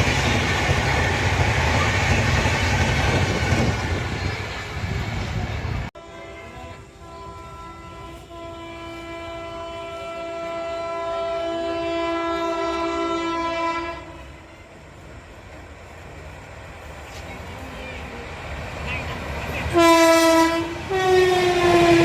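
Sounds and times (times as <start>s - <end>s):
passing train rumbling: 0.0s - 22.0s
two-tone train horn: 6.0s - 14.8s, 19.7s - 22.0s.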